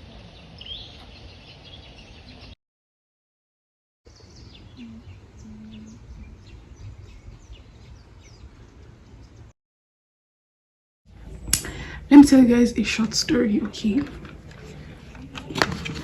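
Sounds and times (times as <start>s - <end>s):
birds chirping: 0.0s - 2.6s, 4.1s - 9.5s.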